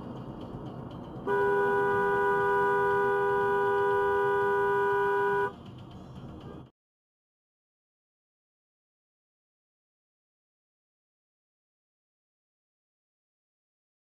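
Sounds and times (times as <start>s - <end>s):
road noise: 0.0s - 6.7s
car horn long blast: 1.2s - 5.6s.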